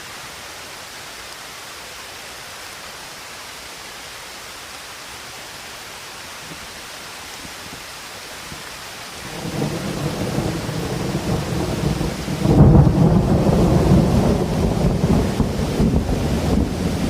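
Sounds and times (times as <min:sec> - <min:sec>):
rain hiss: 0:00.0 - 0:17.0
thunder rumbling: 0:09.2 - 0:17.0.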